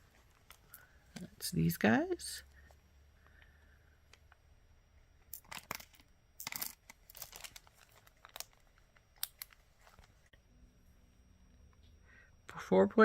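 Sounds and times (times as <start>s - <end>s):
glass beads clicking: 5.3s - 7.6s
plastic bags crinkling: 5.3s - 10.3s.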